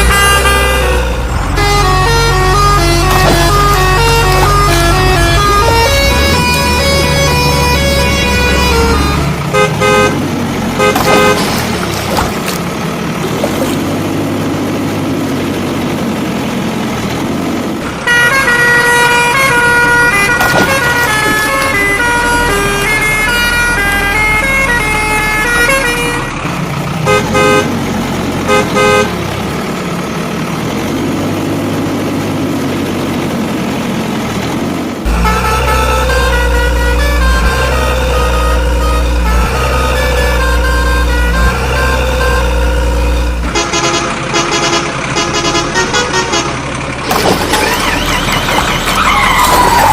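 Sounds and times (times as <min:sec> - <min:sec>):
vehicle horn toots: 0:00.0 - 0:12.5, 0:18.0 - 0:26.4, 0:27.0 - 0:27.8, 0:28.4 - 0:29.3, 0:35.1 - 0:49.9
engine sounds: 0:00.0 - 0:49.9.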